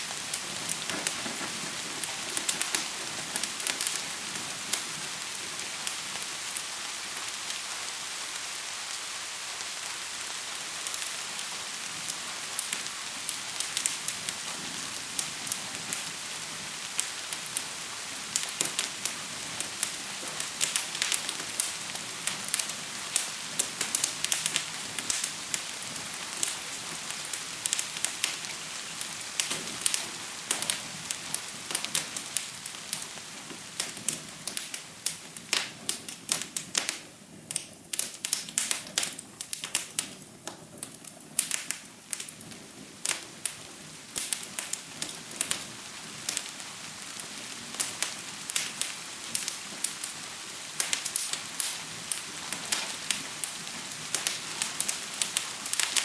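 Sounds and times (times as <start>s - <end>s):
rain falling: 0.0s - 56.0s
wood fire crackling and popping: 0.0s - 56.0s.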